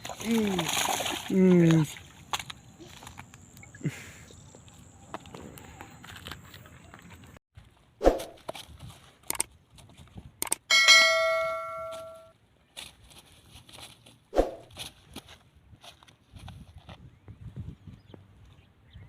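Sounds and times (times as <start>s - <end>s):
metal struck and ringing: 10.7s - 12.3s.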